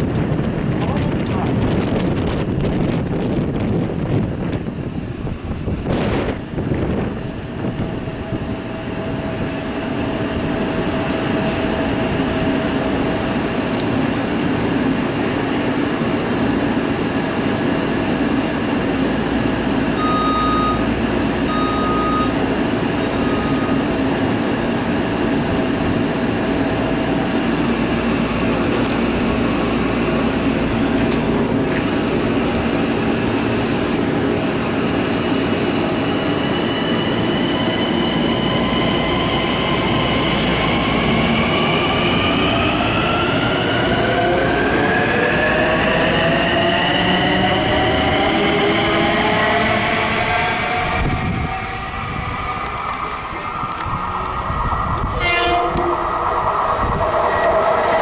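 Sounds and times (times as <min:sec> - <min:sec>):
train rumbling: 0:00.0 - 0:58.0
short high beeps: 0:20.0 - 0:20.9, 0:21.5 - 0:22.4, 0:23.2 - 0:23.8.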